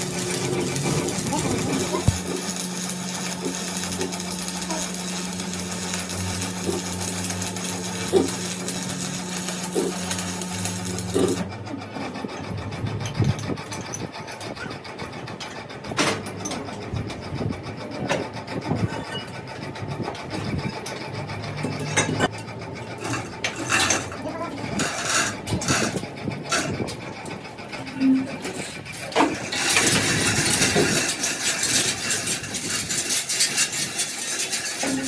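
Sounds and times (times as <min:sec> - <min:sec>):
power tool humming: 0:00.0 - 0:11.5.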